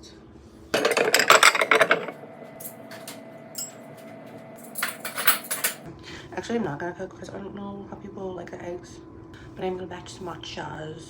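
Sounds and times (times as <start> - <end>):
dishes and utensils rattling: 0.8 - 5.9.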